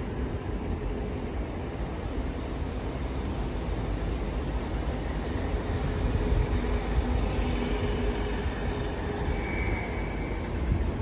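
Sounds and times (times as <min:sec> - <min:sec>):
train rumble: 0:00.0 - 0:11.0
high whine: 0:02.8 - 0:11.0.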